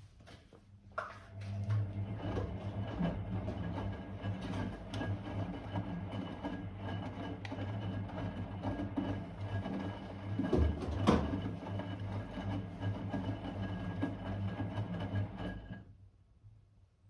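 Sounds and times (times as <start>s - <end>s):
washing machine knock: 10.5s - 11.4s.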